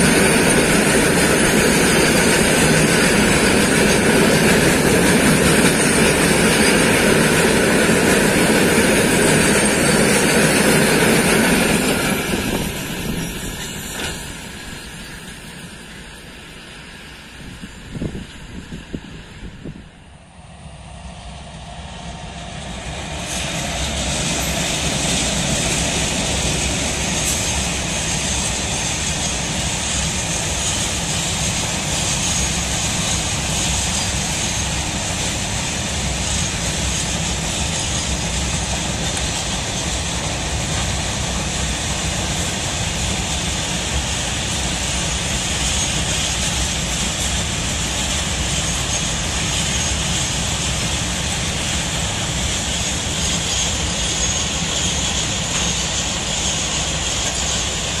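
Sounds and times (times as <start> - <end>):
freight train wagons rumbling: 0.0 - 58.0.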